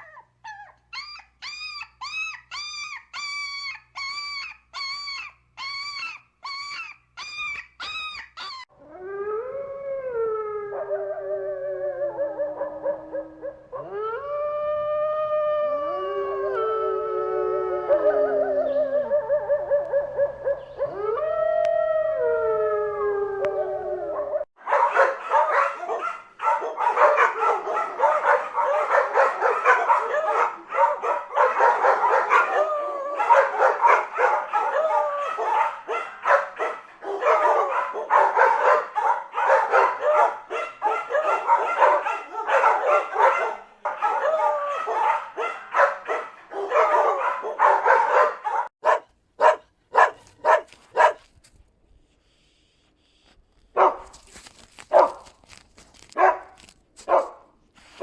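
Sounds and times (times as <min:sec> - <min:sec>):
dogs barking and yipping: 0:00.0 - 0:08.7, 0:24.6 - 0:51.3, 0:53.8 - 0:58.0
dog howling: 0:04.2 - 0:48.7.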